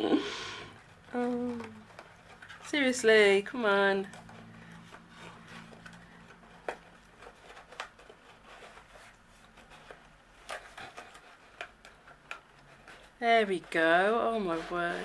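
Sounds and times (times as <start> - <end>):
cardboard lid scraping on box: 13.7 - 15.0.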